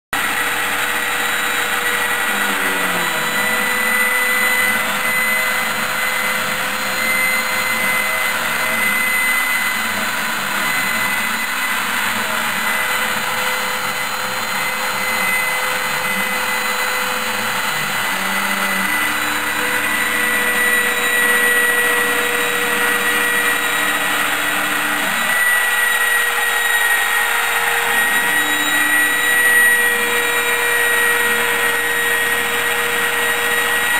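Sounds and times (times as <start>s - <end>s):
high spindle whine: 0.2s - 33.9s
stepper motors shifting pitch: 0.2s - 33.9s.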